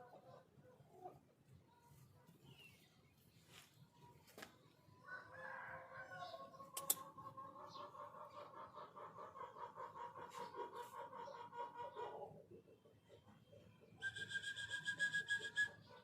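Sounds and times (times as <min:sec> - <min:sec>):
rooster crowing: 0:05.0 - 0:06.4
sharp click: 0:06.8 - 0:07.1.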